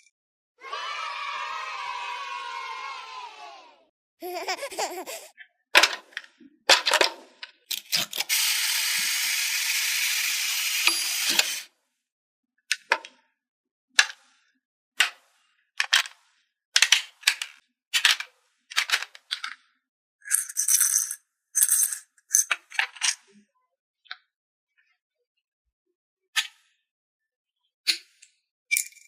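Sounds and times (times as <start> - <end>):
toy pieces clicking and tapping: 20.2 - 23.2.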